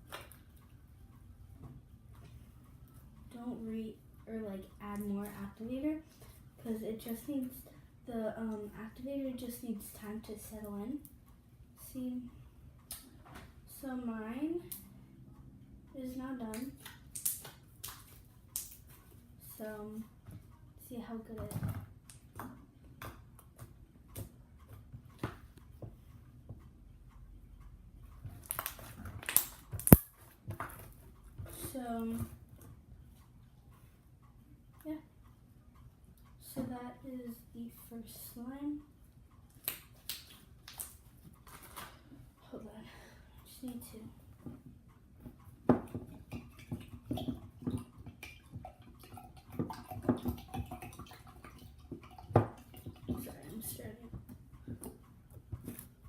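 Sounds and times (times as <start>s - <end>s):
slime wet clicks and crackles: 16.6s - 18.8s, 28.4s - 30.1s, 39.6s - 41.0s.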